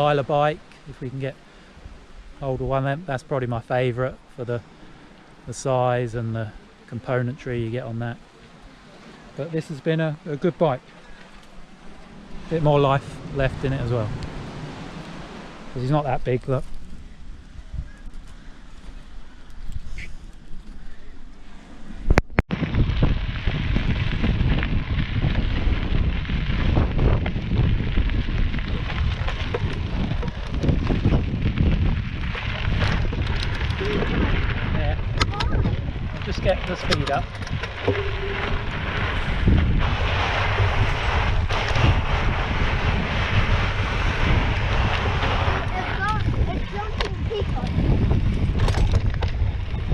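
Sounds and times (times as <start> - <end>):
wind buffeting microphone: 11.5 - 49.9
tyres rolling over rocky dirt: 22.5 - 49.9.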